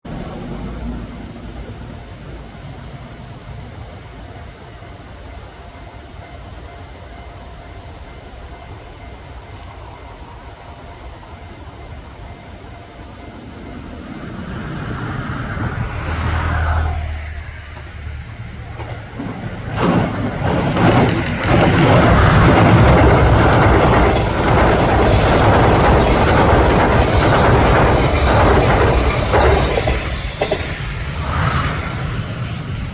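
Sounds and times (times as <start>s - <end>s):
train passing at speed: 0.0s - 32.9s.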